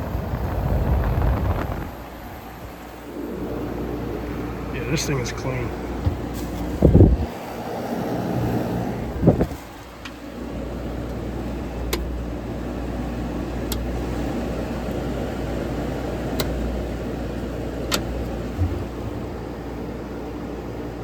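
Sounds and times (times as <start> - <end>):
blower air noise: 0.0 - 21.0
compressor hum: 0.0 - 21.0.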